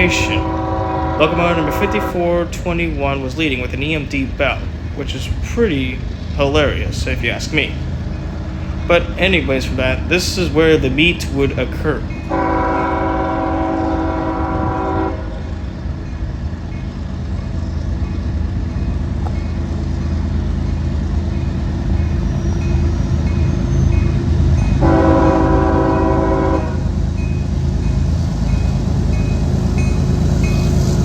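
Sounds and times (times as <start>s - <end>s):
locomotive air horn blasts: 0.0s - 2.5s, 12.3s - 15.5s, 24.8s - 26.9s
locomotive engine rumble: 0.0s - 31.0s.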